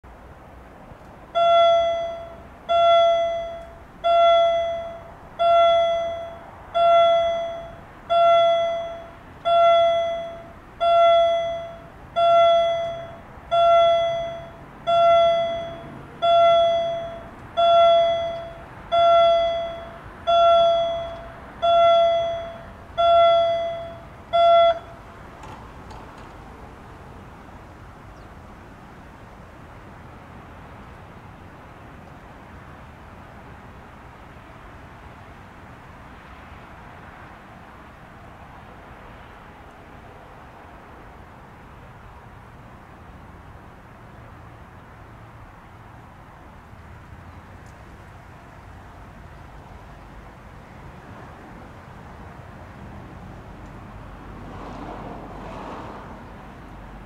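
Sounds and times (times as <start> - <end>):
level crossing warning bell: 1.3 - 25.6.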